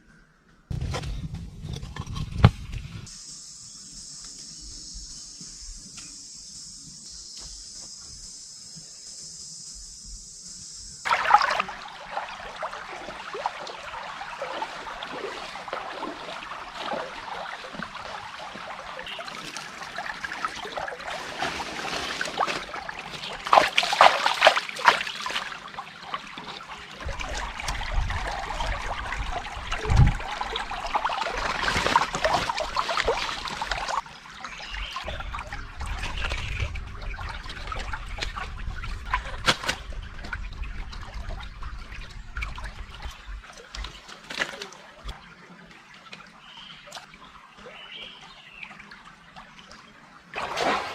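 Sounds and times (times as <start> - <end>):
water trickling and splashing: 11.0 - 50.9.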